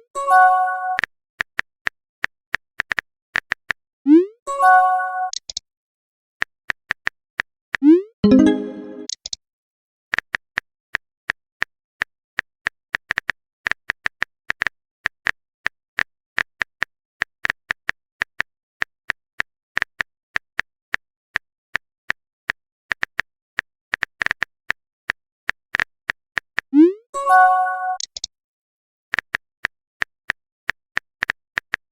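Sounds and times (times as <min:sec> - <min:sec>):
phone keyboard typing clicks: 0:27.9 - 0:28.3.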